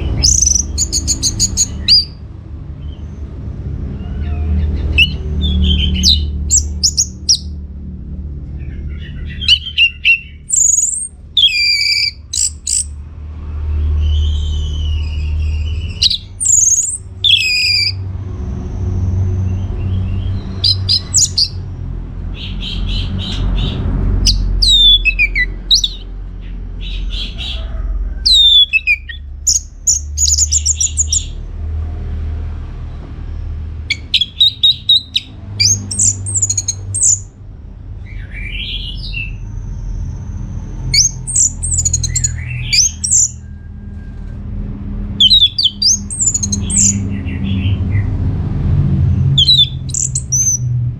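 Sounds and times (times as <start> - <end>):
low rumble: 12.2 - 50.9
thrush singing: 19.7 - 21.6, 22.4 - 31.4, 33.8 - 37.3, 45.2 - 48.0, 49.3 - 50.7.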